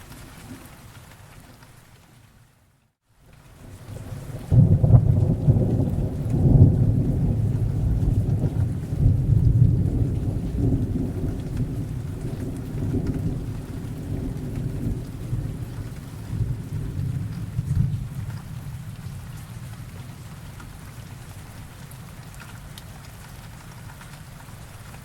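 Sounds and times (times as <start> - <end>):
steady rain: 0.0 - 25.0
rolling thunder: 3.9 - 20.8.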